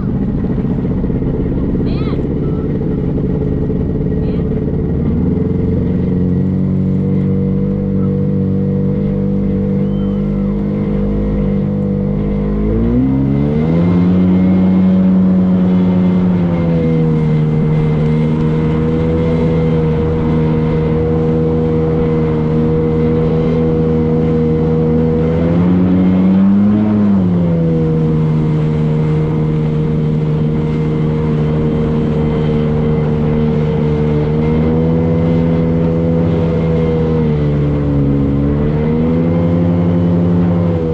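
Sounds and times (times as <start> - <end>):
boat engine humming: 0.0 - 40.9.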